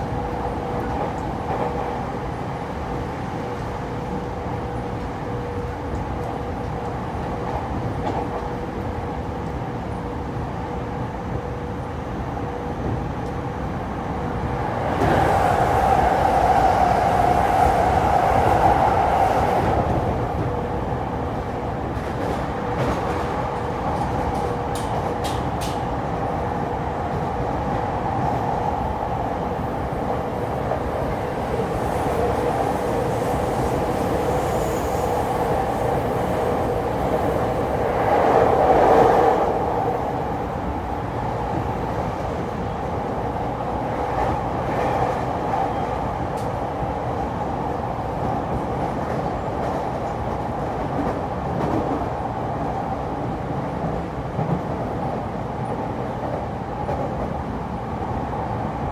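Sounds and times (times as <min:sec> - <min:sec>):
train wheels and motors rumbling: 0:11.7 - 0:52.2.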